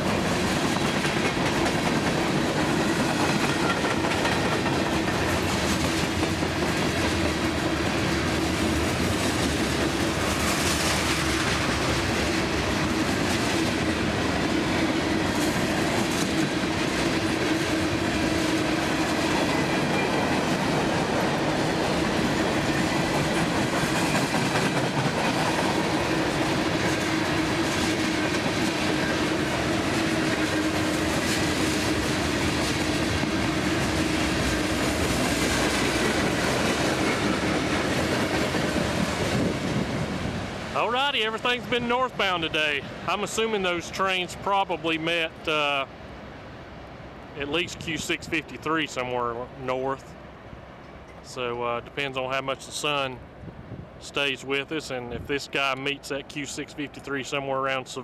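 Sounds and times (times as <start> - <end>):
wheels clacking over rail joints: 0.0 - 45.6
freight train rolling past: 0.0 - 58.0.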